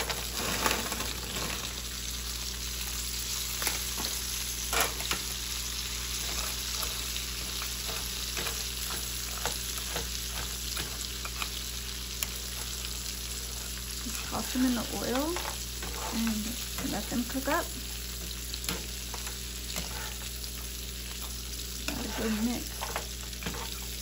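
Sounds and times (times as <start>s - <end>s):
green beans sizzling in pan: 0.0s - 24.0s
spatula scraping a pan: 6.0s - 24.0s.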